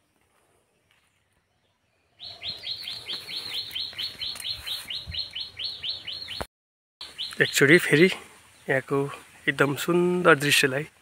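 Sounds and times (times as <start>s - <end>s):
bird chirping rapidly: 2.1s - 8.0s.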